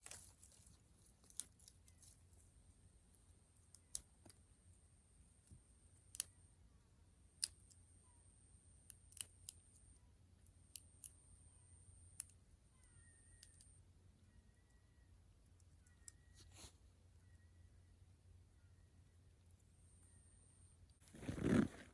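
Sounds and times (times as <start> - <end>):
faint high whine: 4.4 - 21.7.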